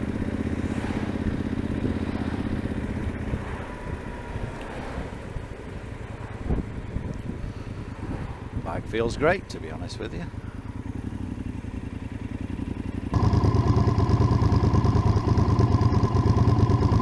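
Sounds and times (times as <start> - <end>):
motorcycle engine running: 0.0 - 3.6, 10.3 - 17.0.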